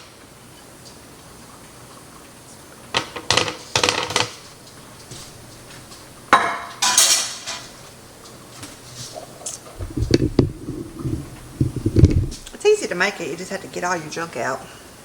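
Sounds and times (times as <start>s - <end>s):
utensils and dishes clinking: 4.6s - 12.6s.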